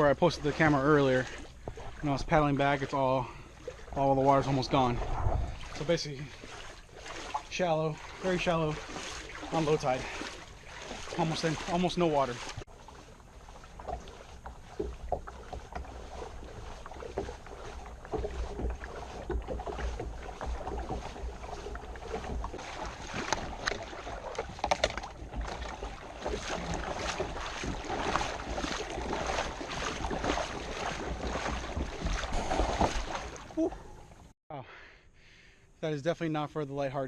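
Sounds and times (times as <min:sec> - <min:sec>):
splashing footsteps in shallow water: 0:00.0 - 0:34.3
wind on microphone: 0:04.8 - 0:05.8.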